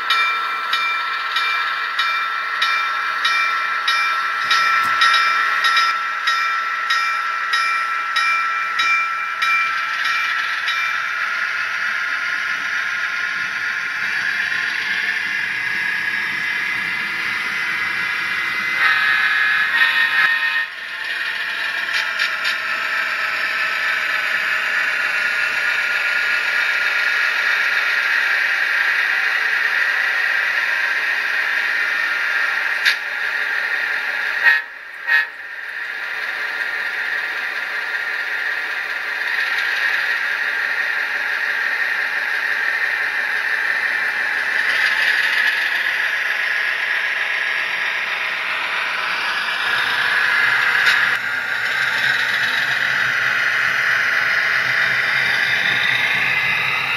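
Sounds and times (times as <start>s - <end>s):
diesel engine sounds from small speaker: 9.8s - 56.9s
locomotive horn: 18.8s - 20.7s.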